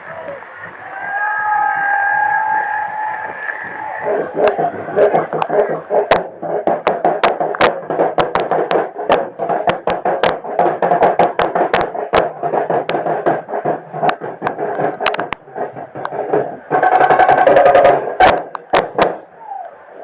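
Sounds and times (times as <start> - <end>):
festival crowd noise: 0.0 - 20.0
sharp percussion hits: 4.0 - 19.2.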